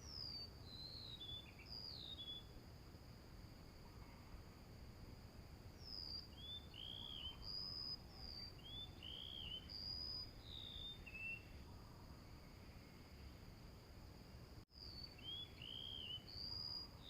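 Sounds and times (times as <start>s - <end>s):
small birds whistling calls: 0.0s - 2.5s, 5.8s - 11.6s, 14.8s - 17.0s.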